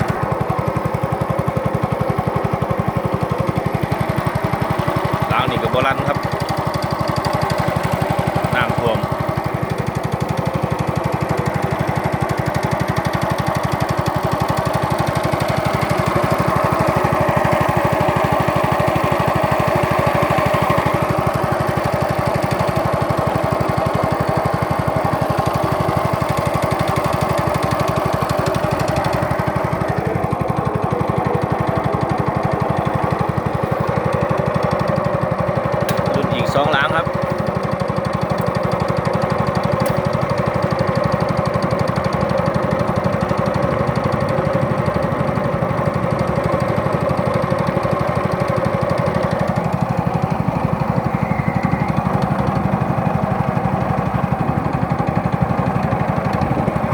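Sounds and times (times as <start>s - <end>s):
boat engine chugging: 0.0s - 56.9s.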